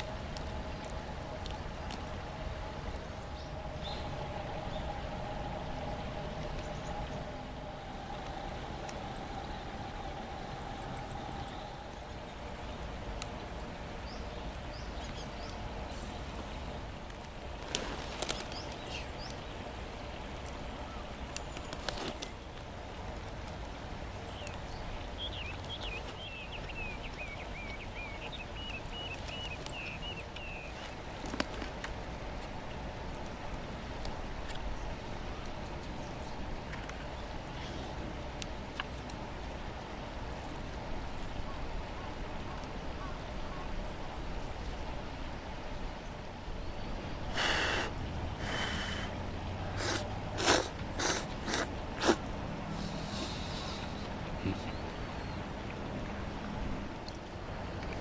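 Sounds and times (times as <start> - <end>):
person breathing: 47.3 - 49.2, 52.8 - 54.6
quick sharp breaths through nose: 47.3 - 49.2, 49.8 - 54.1.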